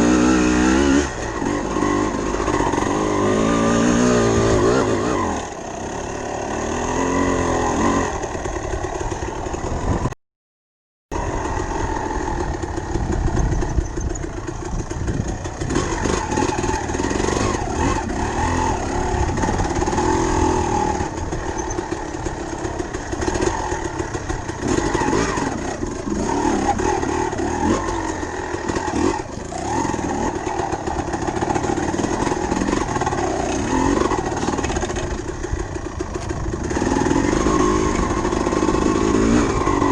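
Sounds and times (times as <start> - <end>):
dirt bike engine revving: 0.0 - 10.2, 11.1 - 39.9
wind buffeting: 12.2 - 16.2.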